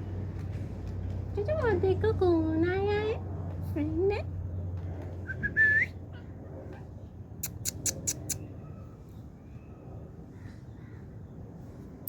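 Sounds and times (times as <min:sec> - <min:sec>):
rising whistle: 0:05.3 - 0:05.9
sharp short animal calls: 0:07.4 - 0:08.4.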